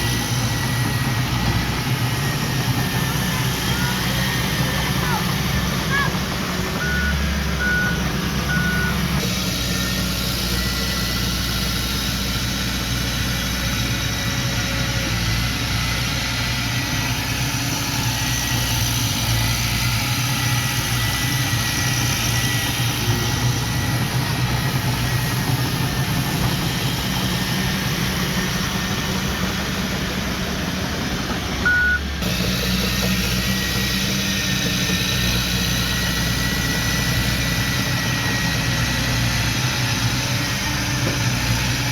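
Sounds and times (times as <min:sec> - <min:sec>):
heavy diesel machinery running: 0:00.0 - 0:41.9
reversing alarm beeping: 0:06.8 - 0:09.2, 0:31.6 - 0:32.2.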